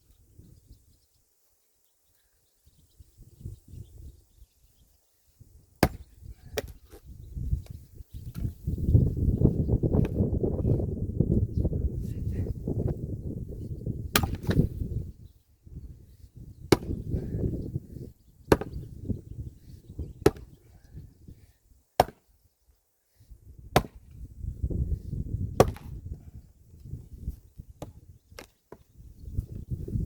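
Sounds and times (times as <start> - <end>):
axe splitting wood: 5.8 - 6.8, 14.1 - 14.7, 16.7 - 17.0, 18.5 - 18.8, 20.2 - 20.5, 22.0 - 22.3, 23.7 - 24.1, 25.6 - 26.0.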